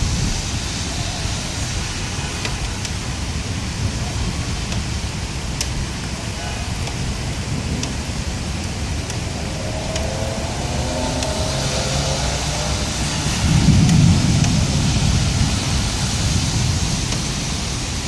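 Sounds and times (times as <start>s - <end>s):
thunder rumble: 0.0s - 2.4s, 7.1s - 18.0s
heavy rain pouring: 0.0s - 18.0s.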